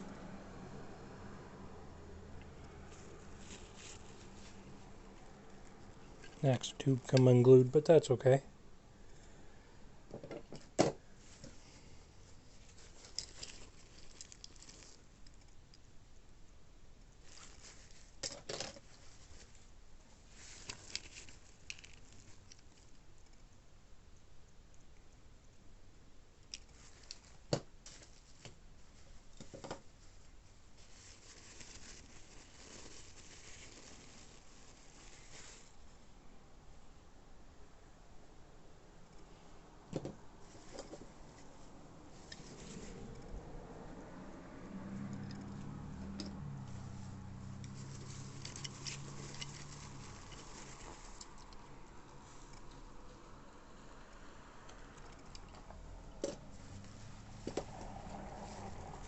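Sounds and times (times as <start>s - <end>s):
hands handling plastic packaging: 2.6s - 7.4s, 10.6s - 15.8s, 17.0s - 23.4s, 26.4s - 36.1s, 40.4s - 43.2s, 45.3s - 52.9s
packaging rustling: 2.9s - 6.5s, 12.6s - 15.1s, 20.3s - 23.0s, 30.8s - 35.8s, 47.7s - 51.6s.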